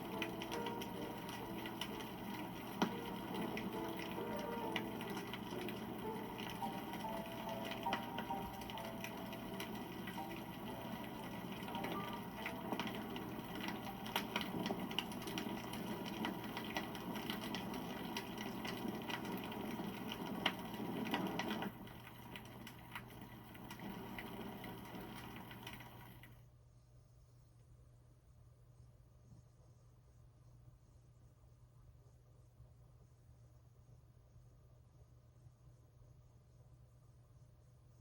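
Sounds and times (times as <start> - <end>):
campfire crackling and popping: 0.0 - 26.2.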